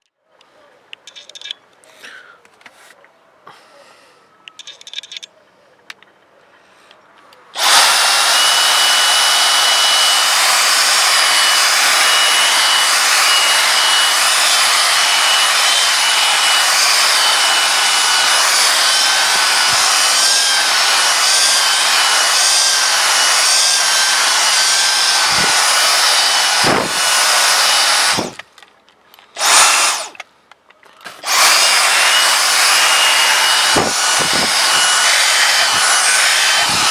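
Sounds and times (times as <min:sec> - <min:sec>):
handheld vacuum cleaner running: 0:07.6 - 0:28.4, 0:29.4 - 0:30.2, 0:31.1 - 0:36.9.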